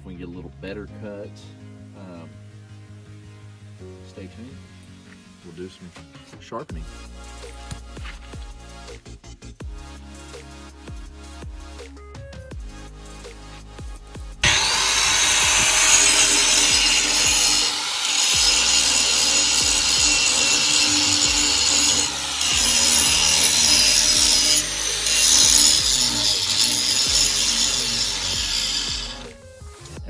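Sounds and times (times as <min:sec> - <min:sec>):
angle grinder grinding metal: 0:14.4 - 0:29.4.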